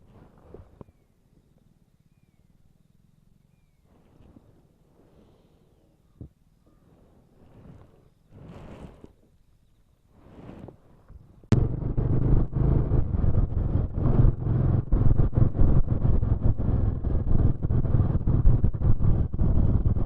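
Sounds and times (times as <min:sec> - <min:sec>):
wind rushing over microphone: 0:10.1 - 0:20.0
motorcycle engine running: 0:11.5 - 0:20.0.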